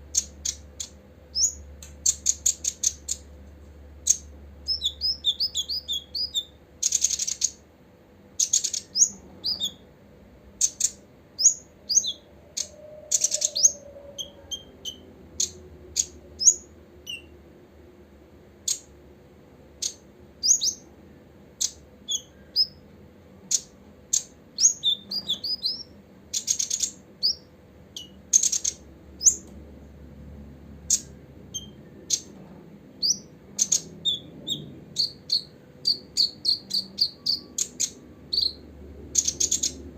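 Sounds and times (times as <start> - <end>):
bird chirping and buzzing: 0.1 - 3.3, 4.0 - 7.6, 8.3 - 9.9, 10.6 - 17.4, 19.8 - 20.9, 21.5 - 22.8, 23.4 - 29.5, 30.8 - 32.4, 33.0 - 39.9.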